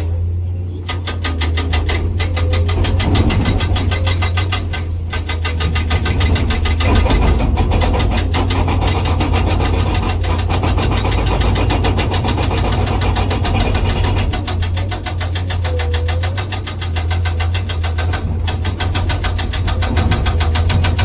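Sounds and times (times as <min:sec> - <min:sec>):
excavator diesel engine running: 0:00.0 - 0:21.0
hydraulic rock breaker hammering: 0:00.0 - 0:21.0.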